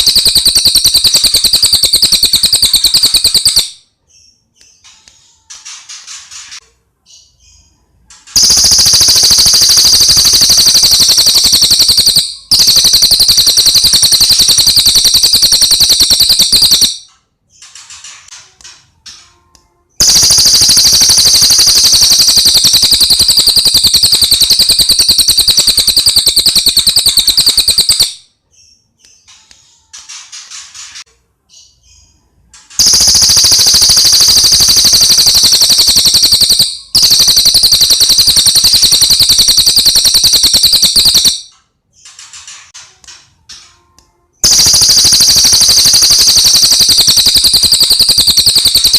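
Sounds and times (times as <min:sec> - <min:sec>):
bird chirping: 0:00.0 - 0:06.4, 0:07.0 - 0:18.0, 0:20.0 - 0:30.0.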